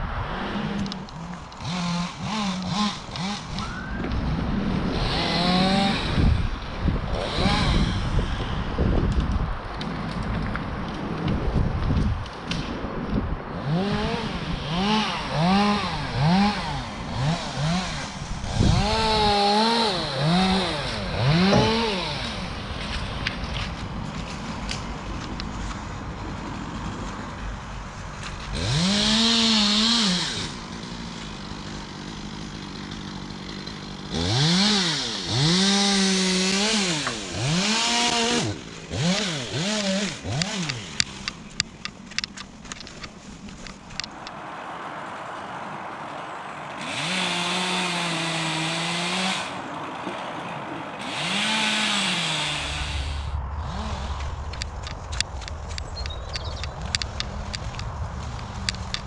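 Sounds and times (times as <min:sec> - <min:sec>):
chainsaw idling and revving: 0:00.6 - 0:03.9, 0:04.8 - 0:08.7, 0:13.5 - 0:23.7, 0:26.2 - 0:42.9, 0:46.6 - 0:54.6.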